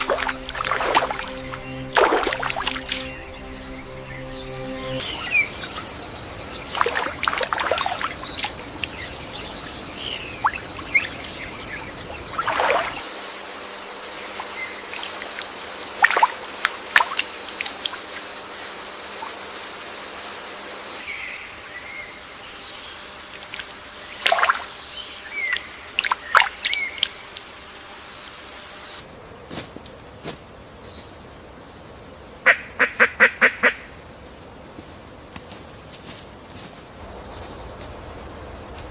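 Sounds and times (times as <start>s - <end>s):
birds chirping: 0.0s - 13.1s
forest hiss: 0.0s - 38.9s.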